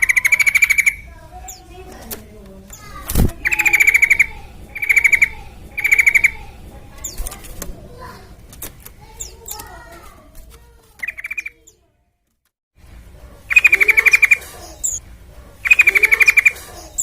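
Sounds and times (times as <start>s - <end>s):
bird trill: 0.0s - 1.8s, 2.7s - 7.4s, 11.0s - 11.8s, 13.5s - 15.0s, 15.6s - 17.0s
loud rapid rattling bird trill: 0.0s - 1.8s, 2.7s - 7.5s, 11.0s - 11.6s, 13.5s - 15.0s, 15.6s - 17.0s
bird chirps and warbles: 0.0s - 7.6s, 9.0s - 9.9s, 11.0s - 11.9s, 13.5s - 17.0s.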